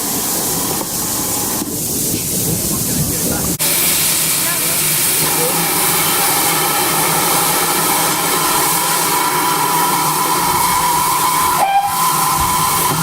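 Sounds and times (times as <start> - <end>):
steam locomotive hissing: 0.0 - 13.0.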